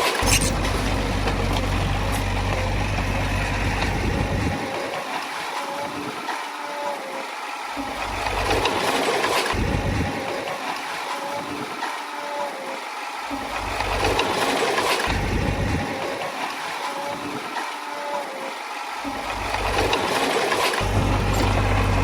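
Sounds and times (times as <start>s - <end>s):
bulldozer diesel engine running: 0.2s - 5.0s, 7.9s - 8.9s, 9.5s - 10.4s, 15.0s - 16.0s, 19.1s - 22.0s.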